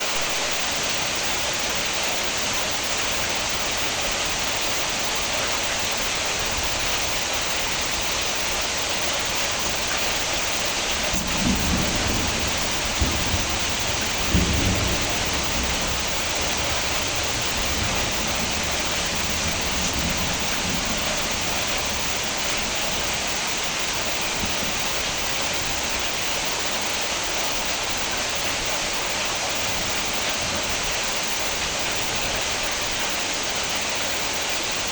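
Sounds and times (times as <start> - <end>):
thunder rumbling: 0.0 - 27.0
heavy rain: 0.0 - 34.9
sharp thunderclaps: 9.6 - 25.8.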